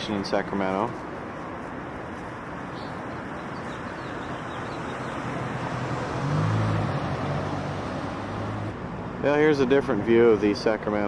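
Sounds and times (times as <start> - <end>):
outdoor background noise: 0.0 - 11.0
engine low hum: 3.0 - 9.2.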